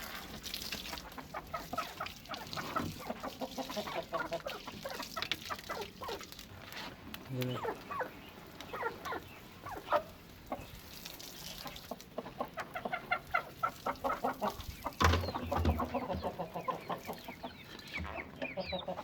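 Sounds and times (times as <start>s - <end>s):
chickens clucking: 0.8s - 6.3s, 7.3s - 19.0s
dull thump: 15.0s - 16.3s.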